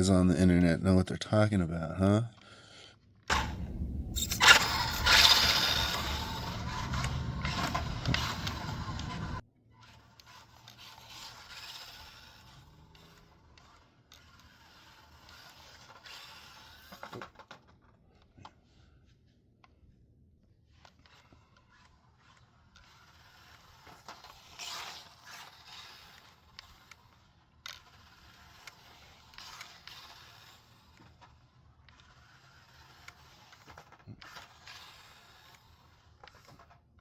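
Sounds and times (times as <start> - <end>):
tires scraping on surface: 3.3 - 9.4
toy truck motor whir: 3.3 - 18.0, 20.7 - 36.9.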